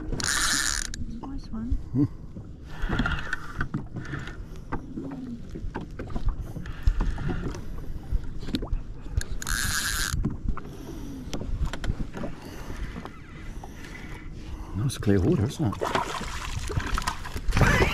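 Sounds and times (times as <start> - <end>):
fishing gear knocking and clicking: 0.0 - 1.1, 9.1 - 10.4
water splashing against hull: 0.0 - 17.9.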